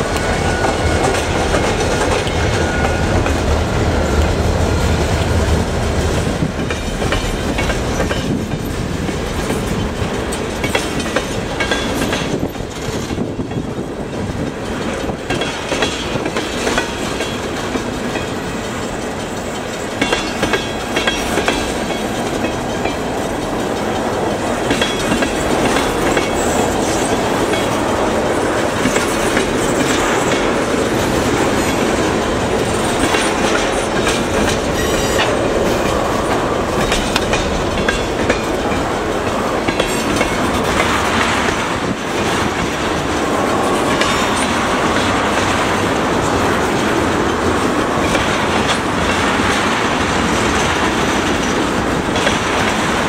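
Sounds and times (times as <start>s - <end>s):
train wheels clattering on rails: 0.0s - 53.0s.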